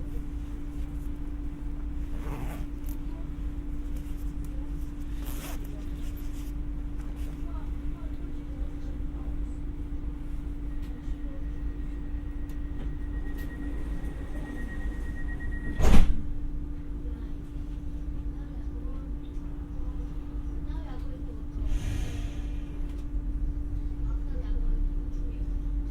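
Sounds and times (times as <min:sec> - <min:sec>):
faint high whine: 0:00.0 - 0:16.4
train rumble and hum: 0:00.0 - 0:25.9.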